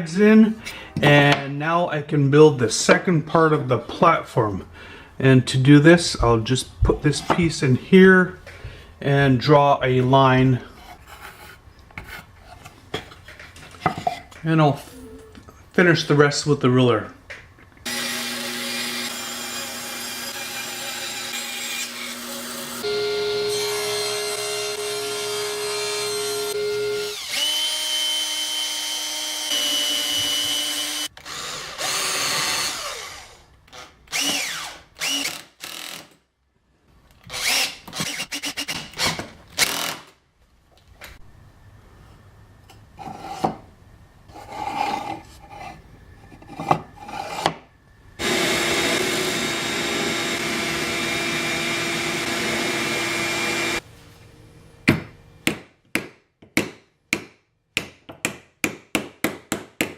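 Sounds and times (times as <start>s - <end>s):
workshop noises: 5.5s - 36.2s, 41.9s - 59.9s
electric power tool running: 17.9s - 29.5s, 48.2s - 53.8s.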